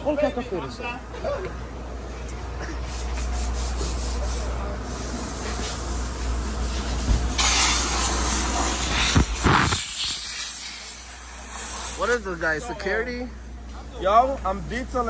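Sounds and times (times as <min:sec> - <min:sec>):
water spray hissing: 0:07.4 - 0:12.2.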